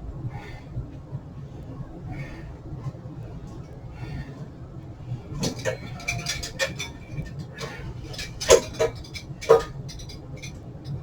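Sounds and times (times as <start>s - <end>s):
small clicks and clinks: 5.4s - 11.0s.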